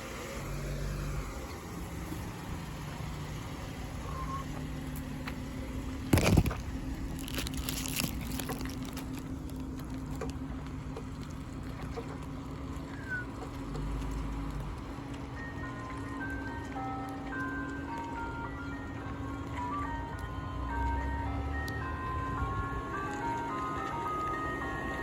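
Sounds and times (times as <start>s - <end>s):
vehicle engine running: 0.0s - 25.0s
ice cream truck jingle: 14.8s - 25.0s.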